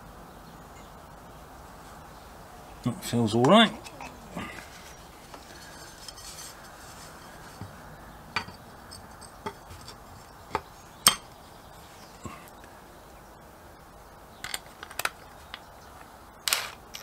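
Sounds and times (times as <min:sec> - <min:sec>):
metal tools and bolts clinking: 0:08.4 - 0:10.4, 0:11.0 - 0:11.3, 0:16.5 - 0:17.0.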